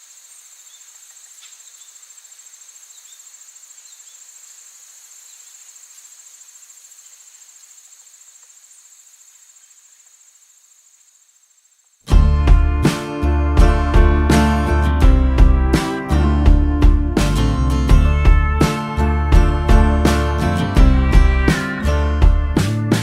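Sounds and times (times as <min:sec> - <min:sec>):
insects trilling: 0:00.0 - 0:12.1.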